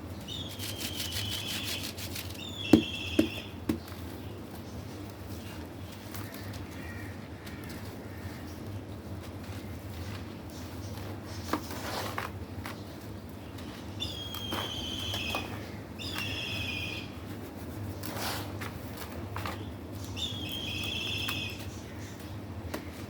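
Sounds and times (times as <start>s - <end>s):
bird calling: 0.2s - 3.8s, 14.0s - 17.2s, 19.4s - 22.2s.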